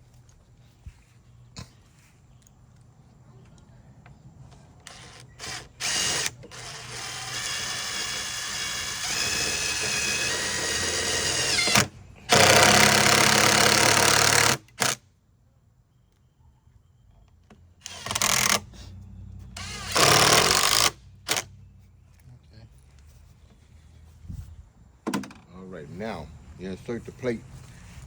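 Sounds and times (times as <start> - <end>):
impact driver driving screws: 4.9 - 15.0, 17.8 - 18.7, 19.6 - 21.5.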